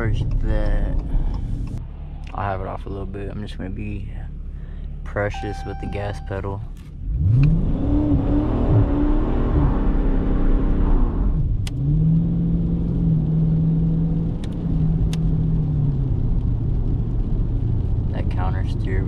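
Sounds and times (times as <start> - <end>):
car engine revving: 5.4 - 19.0.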